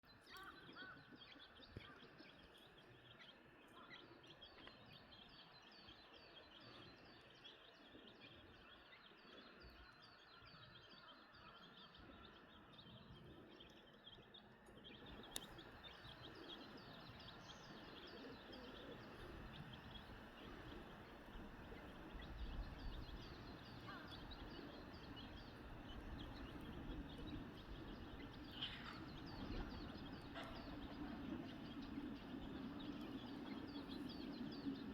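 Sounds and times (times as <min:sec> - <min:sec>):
low outdoor background noise: 0:00.0 - 0:34.9.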